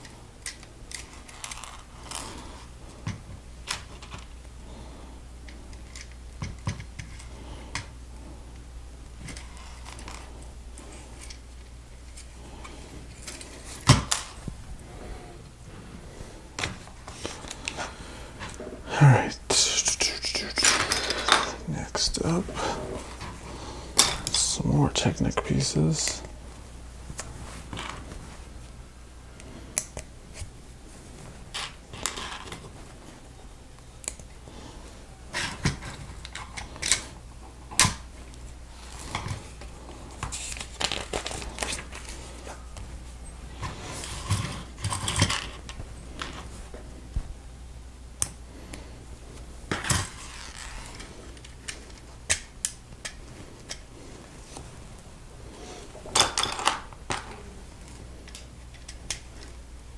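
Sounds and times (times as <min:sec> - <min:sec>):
plastic pieces scraping rattles: 0:44.0 - 0:46.4.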